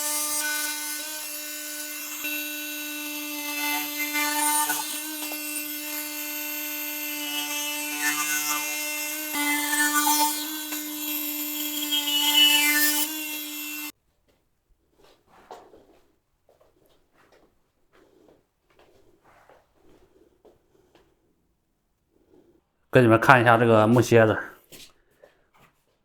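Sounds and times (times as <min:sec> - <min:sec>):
power tool cutting wood: 0:00.0 - 0:13.9.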